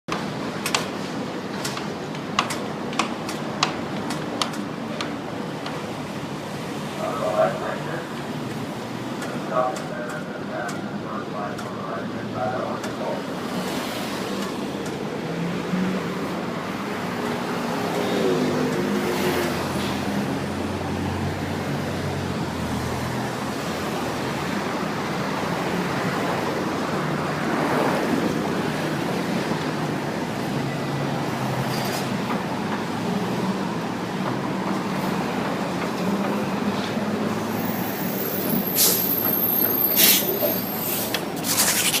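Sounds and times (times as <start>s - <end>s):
street traffic: 0.0s - 42.0s
heavy vehicle engine: 0.1s - 42.0s.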